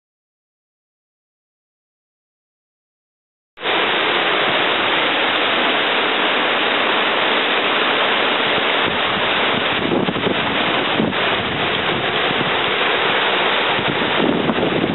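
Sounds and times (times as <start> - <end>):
waterfall rushing: 3.6 - 14.9.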